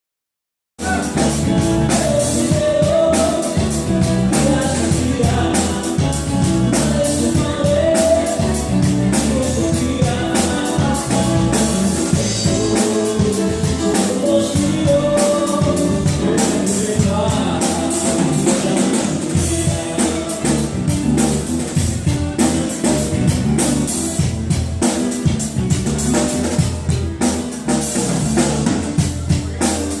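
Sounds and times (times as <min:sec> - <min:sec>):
person singing: 0:00.8 - 0:24.0
drum kit: 0:00.8 - 0:30.0.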